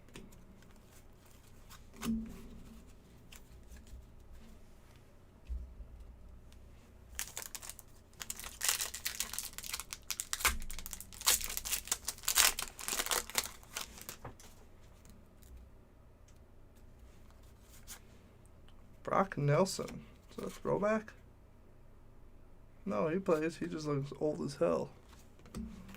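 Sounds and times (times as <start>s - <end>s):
foil wrapper crinkling and tearing: 7.1s - 14.2s.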